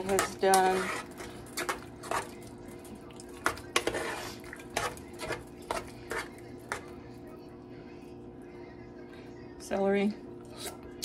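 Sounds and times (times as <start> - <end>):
utensil scraping cooking pan: 0.0 - 7.3.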